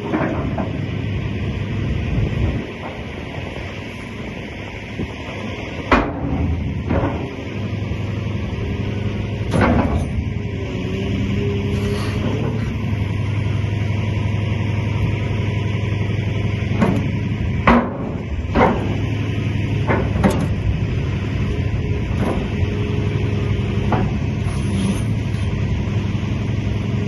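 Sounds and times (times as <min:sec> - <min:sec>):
excavator engine drone: 0:00.0 - 0:27.0
hydraulic whine: 0:00.0 - 0:27.0.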